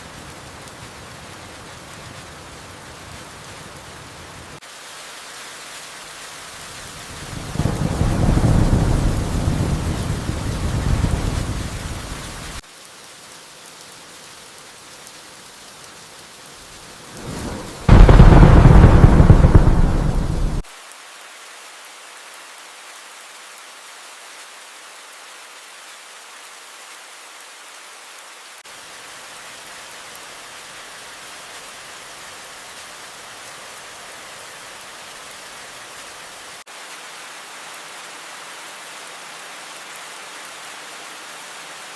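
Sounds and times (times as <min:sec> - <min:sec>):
steady rain: 0:00.0 - 0:41.9
thunder rumbling: 0:07.3 - 0:12.6, 0:17.2 - 0:20.6
thunder crash: 0:07.6 - 0:12.4, 0:17.2 - 0:20.6.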